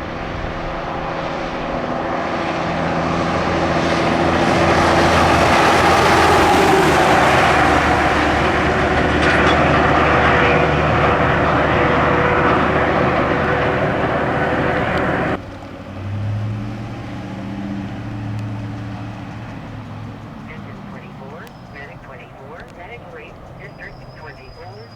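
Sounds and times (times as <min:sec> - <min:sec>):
loud engine drone: 0:00.0 - 0:24.9
quieter engine humming: 0:00.0 - 0:24.9.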